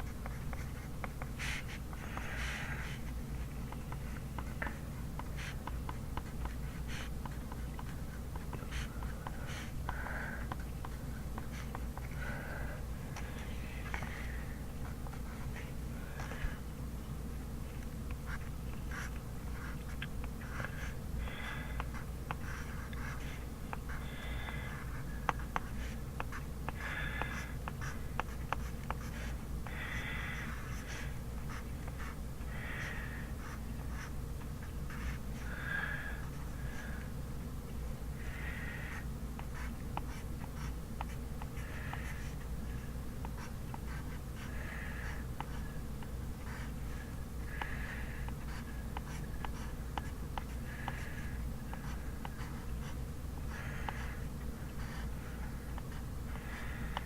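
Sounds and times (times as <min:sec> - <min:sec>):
steady low hum: 0:00.0 - 0:57.0
pen scratching on paper: 0:04.0 - 0:09.8, 0:10.5 - 0:12.0, 0:18.2 - 0:21.0, 0:21.6 - 0:32.2, 0:32.8 - 0:35.2, 0:38.8 - 0:42.4, 0:43.2 - 0:45.7, 0:46.4 - 0:56.0.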